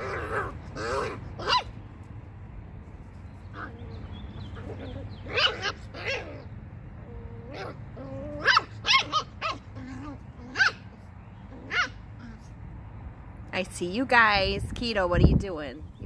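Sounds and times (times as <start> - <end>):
puppy whining: 0.0 - 1.8, 3.5 - 12.6
puppies barking and yipping: 0.0 - 2.2, 3.0 - 12.8.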